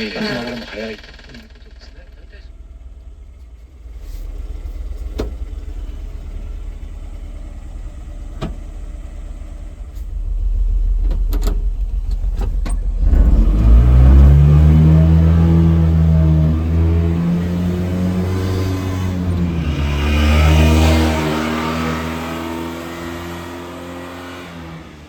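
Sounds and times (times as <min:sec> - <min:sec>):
sharp clicks: 0:00.0 - 0:02.5
small truck engine running: 0:00.0 - 0:25.0.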